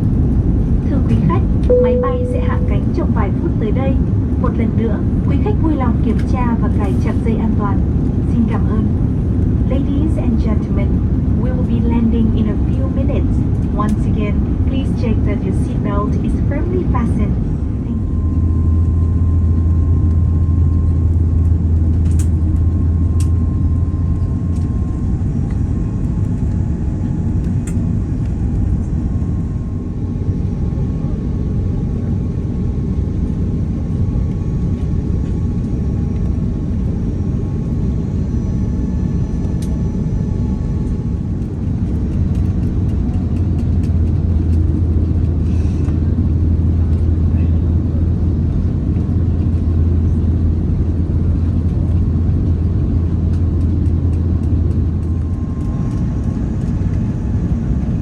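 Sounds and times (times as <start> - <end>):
airliner cabin rumble: 0.0 - 58.0
faint steady tone: 1.7 - 3.0.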